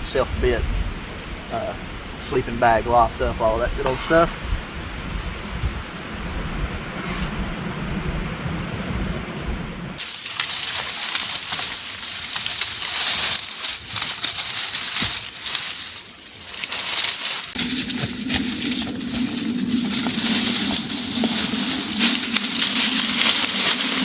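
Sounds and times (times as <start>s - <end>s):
wind rumble on microphone: 0.0s - 10.0s, 17.6s - 24.0s
dry leaves and sticks crunching: 10.0s - 24.0s.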